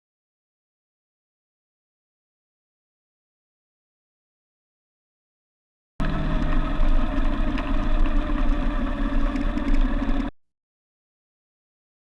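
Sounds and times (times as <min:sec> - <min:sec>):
motorcycle engine running: 0:06.0 - 0:10.3.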